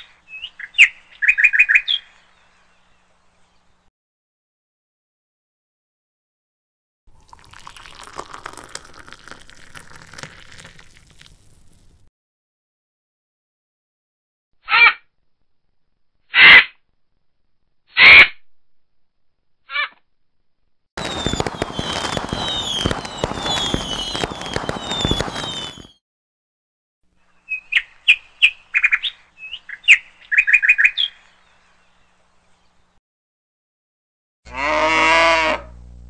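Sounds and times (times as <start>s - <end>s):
birds chirping: 0.0s - 3.9s, 21.0s - 26.0s, 27.2s - 33.0s
crackle: 7.1s - 12.1s, 21.0s - 26.0s
birds squawking: 21.0s - 25.9s.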